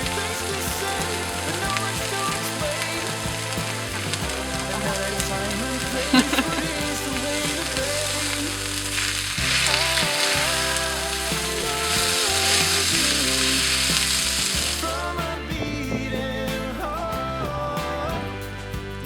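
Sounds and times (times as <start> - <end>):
food sizzling in a hot pan: 0.0 - 14.9
background song: 0.0 - 19.0.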